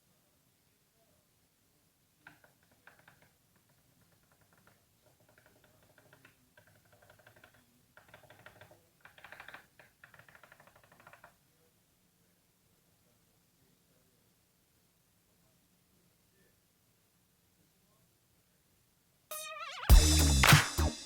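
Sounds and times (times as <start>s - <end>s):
rapid fine clicking: 2.2s - 11.4s.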